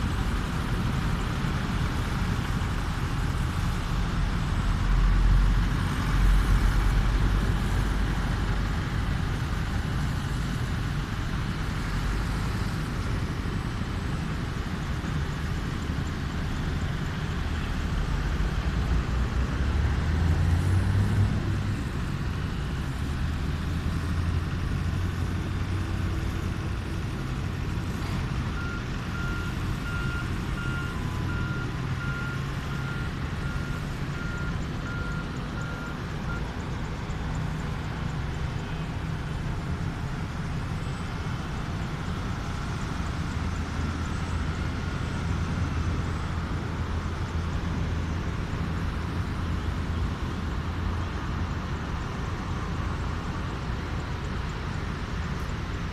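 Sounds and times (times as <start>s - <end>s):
vehicle engines rumbling: 0.0s - 55.9s
reversing alarm beeping: 28.5s - 36.6s.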